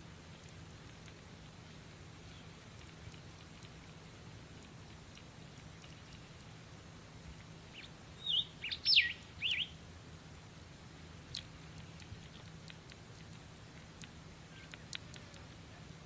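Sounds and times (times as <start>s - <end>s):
faint ticks: 0.0s - 7.9s, 9.4s - 15.7s
bird chirping: 7.7s - 9.8s.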